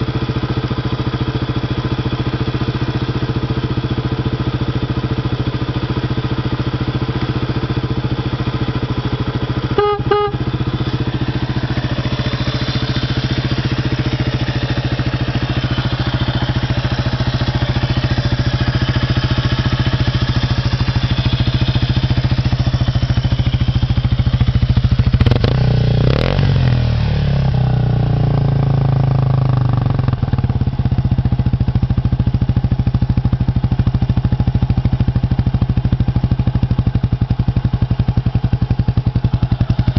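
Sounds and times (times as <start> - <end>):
motorcycle engine idling: 0.0 - 39.9
short beeps: 9.7 - 10.5.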